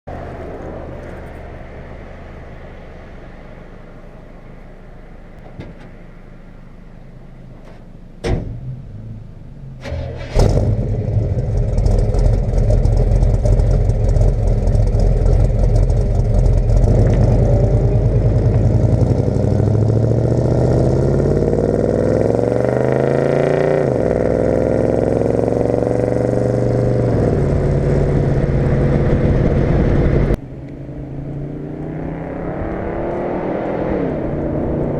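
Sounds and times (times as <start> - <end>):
pickup truck engine revving: 9.8 - 30.4.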